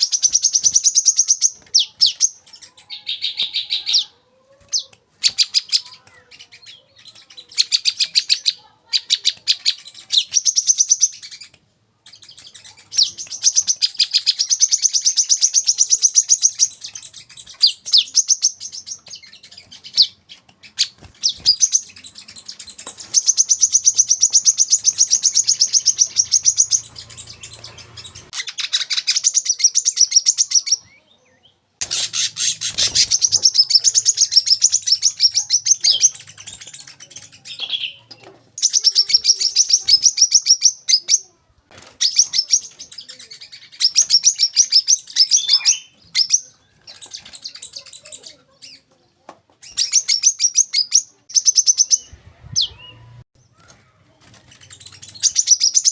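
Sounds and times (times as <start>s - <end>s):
bird singing rapid trills: 0.0s - 4.0s, 12.1s - 31.0s, 54.5s - 55.9s.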